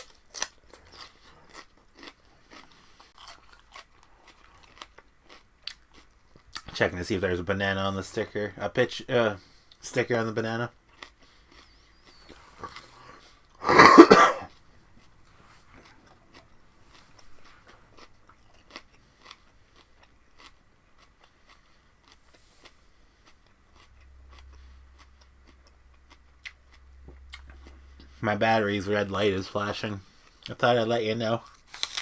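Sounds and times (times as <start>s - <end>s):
person chewing raw vegetables: 0.0s - 6.7s, 10.8s - 28.2s, 31.4s - 32.0s.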